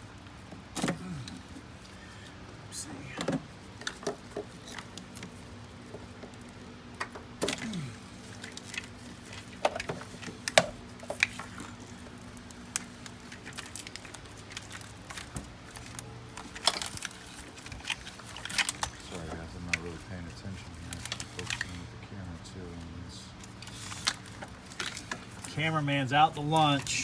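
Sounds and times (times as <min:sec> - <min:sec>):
faint steady hum: 0:00.0 - 0:27.0
tools and parts clinking: 0:03.2 - 0:22.0.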